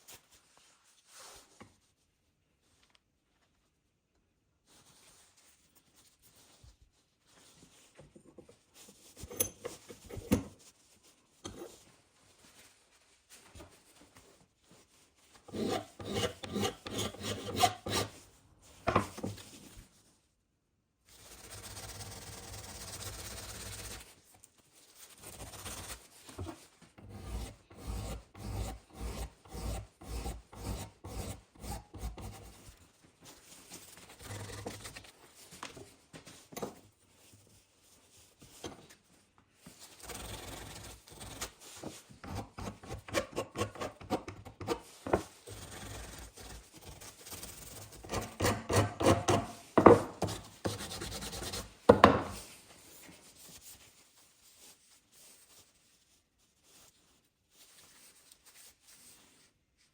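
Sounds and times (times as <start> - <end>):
rubbing and rasping strokes: 14.9 - 18.2, 25.0 - 32.7.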